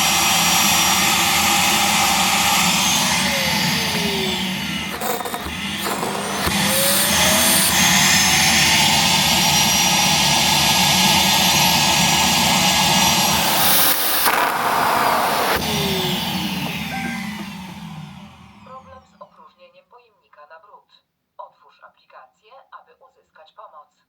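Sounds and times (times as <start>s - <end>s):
suction fan rushing: 0.0s - 19.1s.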